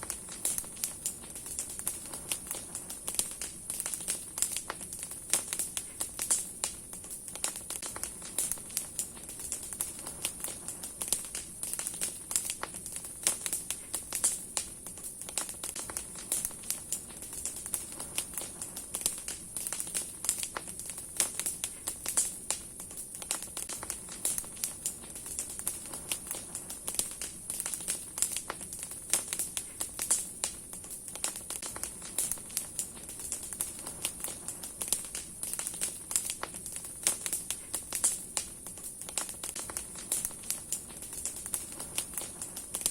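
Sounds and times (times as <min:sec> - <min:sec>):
bonfire crackling and popping: 0:00.0 - 0:42.9
fire steady high hiss: 0:00.0 - 0:42.9.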